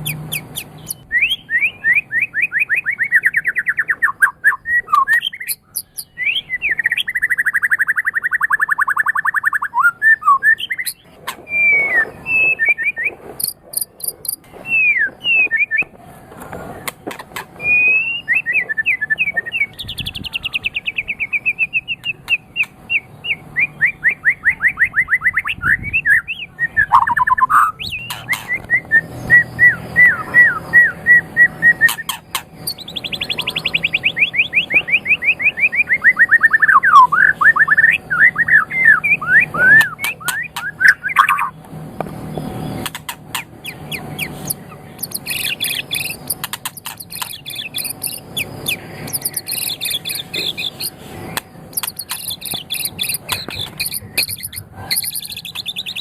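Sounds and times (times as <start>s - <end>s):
songbird singing varied song: 0.0s - 16.0s, 17.6s - 56.0s
bird clicks: 44.2s - 55.7s.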